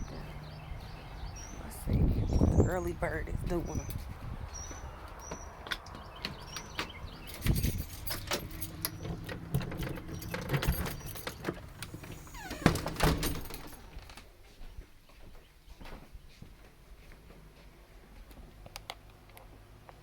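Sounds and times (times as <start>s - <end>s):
door being unlocked and opened: 6.3s - 14.2s
keys jangling: 7.3s - 12.4s, 13.0s - 14.0s.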